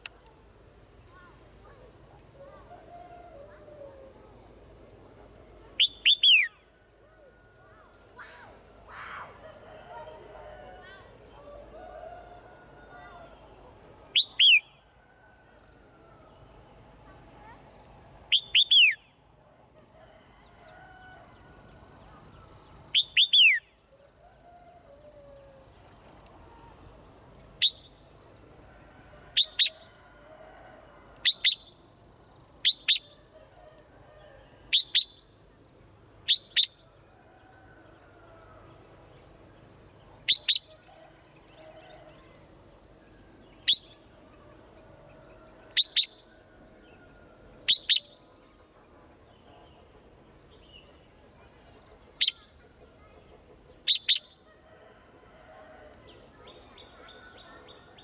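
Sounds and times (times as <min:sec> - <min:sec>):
faint lower bird calls: 0:52.1 - 0:53.2.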